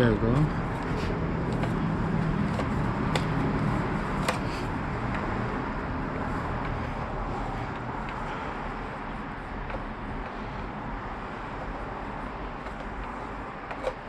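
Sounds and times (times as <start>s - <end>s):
background hum and rumble: 0.0s - 14.0s
sharp clicks of plastic parts: 0.8s - 5.4s, 12.6s - 14.0s.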